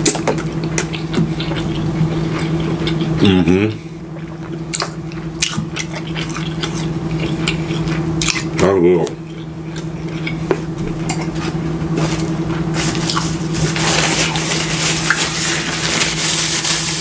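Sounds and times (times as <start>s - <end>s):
chewing and wet mouth sounds: 0.0s - 15.7s
low hum: 0.0s - 17.0s
paper napkin rustling: 11.4s - 17.0s.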